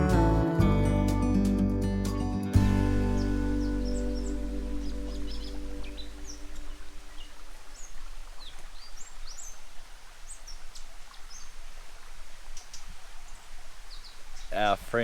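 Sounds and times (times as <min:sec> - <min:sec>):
low music tones: 0:00.0 - 0:07.7
birds chirping: 0:02.6 - 0:15.0
bush ambience hiss: 0:02.7 - 0:15.0.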